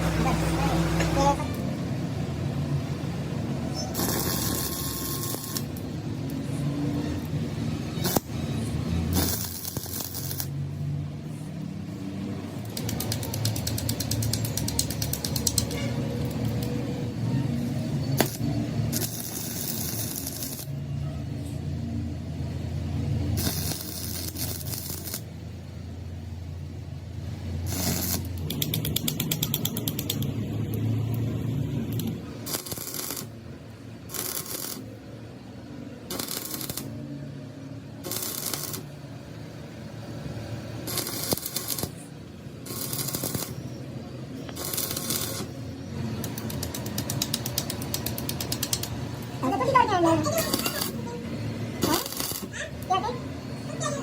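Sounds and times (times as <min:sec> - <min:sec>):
arc welding crackle: 0:02.5 - 0:11.1, 0:12.2 - 0:21.0, 0:22.6 - 0:25.6, 0:27.4 - 0:35.1, 0:36.0 - 0:37.0, 0:38.0 - 0:39.1, 0:40.8 - 0:49.8, 0:50.4 - 0:51.1, 0:51.8 - 0:52.9.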